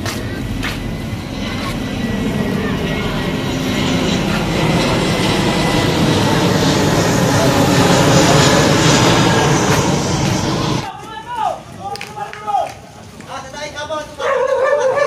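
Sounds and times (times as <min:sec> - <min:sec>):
aircraft engine roar: 0:00.0 - 0:11.0.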